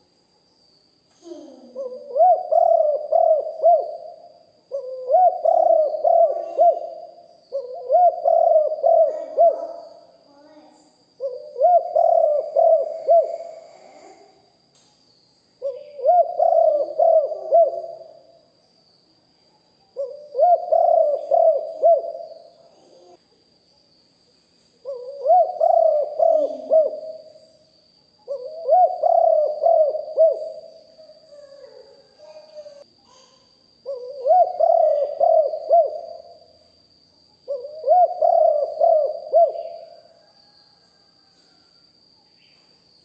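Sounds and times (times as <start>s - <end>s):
dove cooing: 1.2s - 10.2s, 11.2s - 14.2s, 15.6s - 18.2s, 20.0s - 23.2s, 24.8s - 27.4s, 28.2s - 32.4s, 33.8s - 36.5s, 37.5s - 41.3s.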